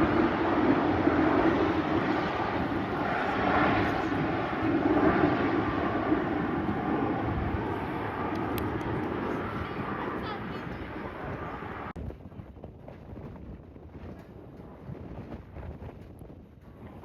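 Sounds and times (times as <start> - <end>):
airliner engines rumbling: 0.0 - 12.0
wind buffeting microphone: 0.0 - 17.0.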